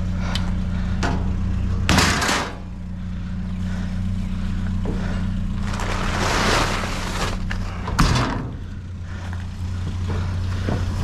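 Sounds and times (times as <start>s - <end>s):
engine idling: 0.0s - 11.0s
rough scraping rustling noise: 5.5s - 7.8s.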